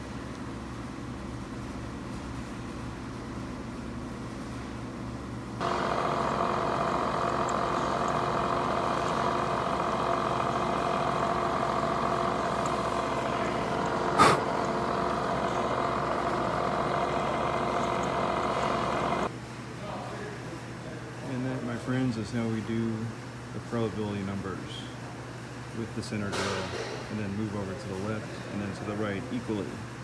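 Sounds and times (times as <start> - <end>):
milling machine running: 5.6 - 19.3.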